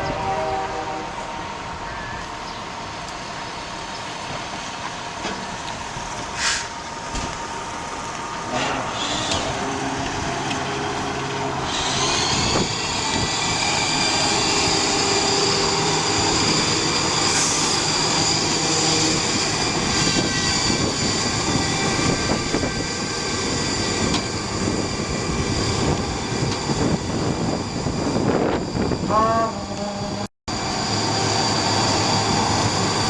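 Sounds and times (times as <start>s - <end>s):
high whine: 7.2s - 33.0s.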